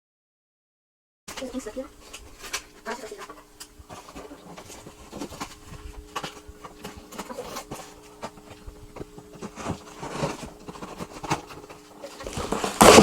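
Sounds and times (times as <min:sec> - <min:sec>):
faint hum: 0:01.3 - 0:13.0
packaging rustling and scraping: 0:01.3 - 0:13.0.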